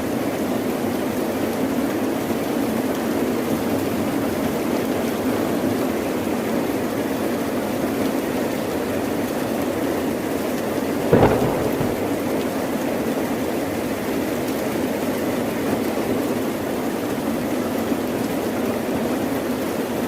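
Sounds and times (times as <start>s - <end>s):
heavy rain: 0.0s - 20.0s
thunder crack and rumble: 11.1s - 13.0s.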